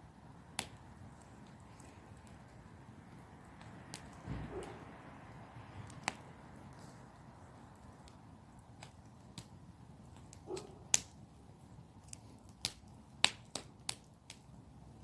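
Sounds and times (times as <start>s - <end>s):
campfire wood crackling: 0.0s - 15.0s
quiet fire hiss: 0.0s - 15.0s.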